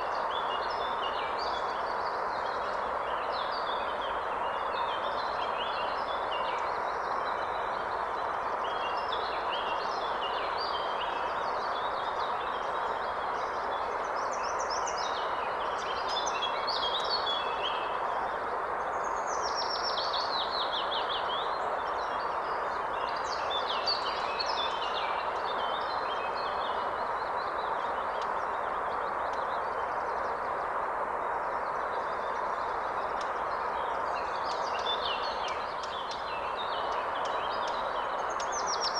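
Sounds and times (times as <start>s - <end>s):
songbirds singing: 18.8s - 38.9s.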